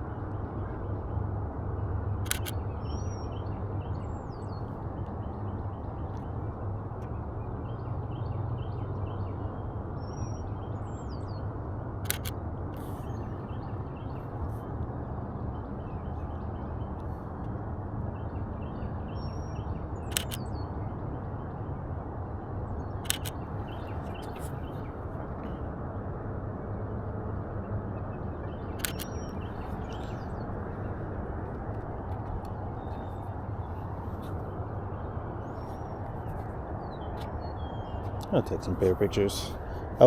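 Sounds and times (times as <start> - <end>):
low outdoor rumble: 0.0 - 40.0
camera shutter clicks: 2.2 - 2.6, 12.0 - 12.9, 20.1 - 20.4, 23.1 - 23.4, 28.8 - 29.2.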